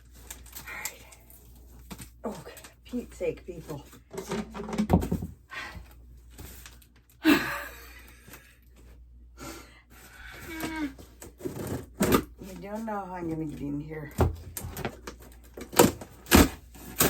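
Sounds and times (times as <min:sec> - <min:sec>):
person sighing loudly: 0:07.2 - 0:08.1
cardboard packaging being handled: 0:14.2 - 0:17.0.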